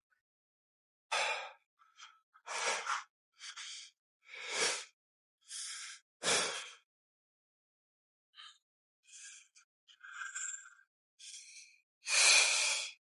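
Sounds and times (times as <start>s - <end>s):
man breathing heavily: 1.1s - 6.8s, 8.4s - 13.0s.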